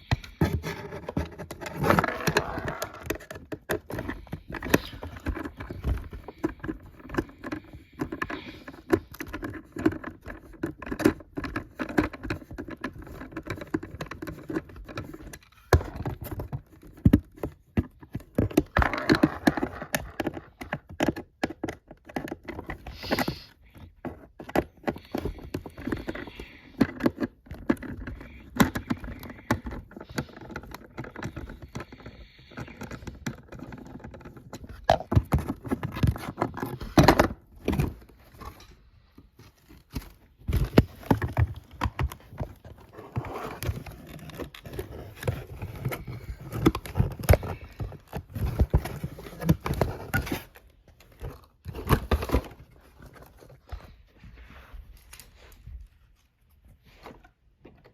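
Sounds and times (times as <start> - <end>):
plastic parts clicking and rattling: 0.0 - 54.0.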